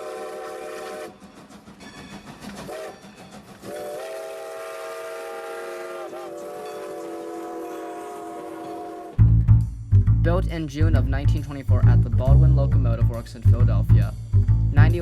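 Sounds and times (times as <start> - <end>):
steam locomotive whistle: 0.0 - 1.2, 2.6 - 9.2
train running: 0.0 - 9.2.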